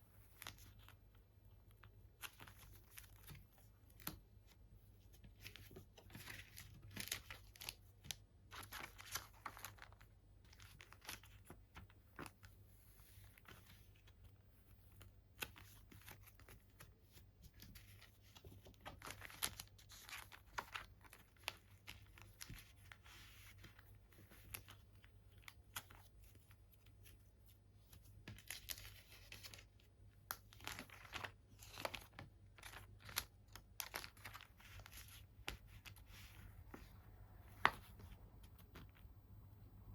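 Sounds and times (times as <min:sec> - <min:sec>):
packaging crinkling and rustling: 0:28.2 - 0:36.4.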